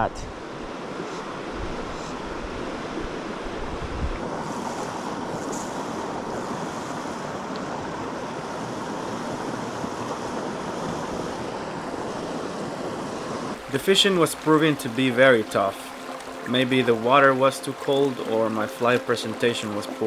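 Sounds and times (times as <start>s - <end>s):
wind rumble on microphone: 0.0s - 13.6s
stream water flowing over rocks: 0.5s - 20.0s.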